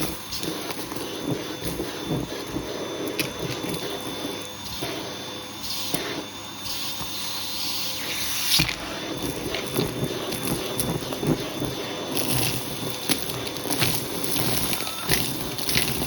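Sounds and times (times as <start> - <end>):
vacuum cleaner motor whine: 0.0 - 16.0
vacuum hose sucking and rustling: 0.0 - 16.0.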